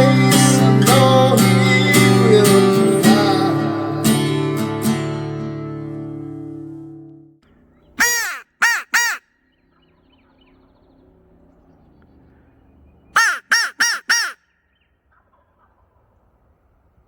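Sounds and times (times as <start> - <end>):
crow cawing: 8.0 - 9.4, 13.1 - 16.1.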